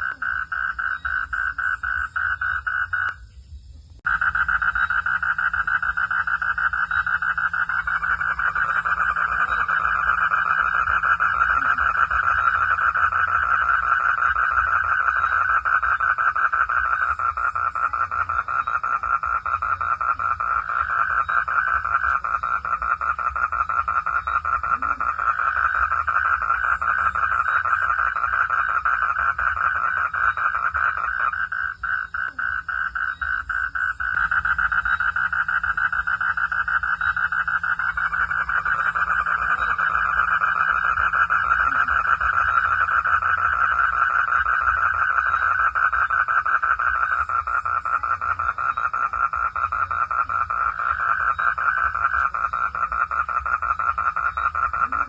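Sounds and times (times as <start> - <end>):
frogs trilling: 0.0 - 55.0
low hum: 33.1 - 44.0.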